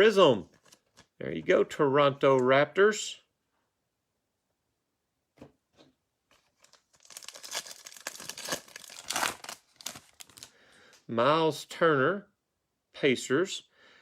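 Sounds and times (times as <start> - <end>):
foil wrapper tearing and crinkling: 6.6 - 10.5.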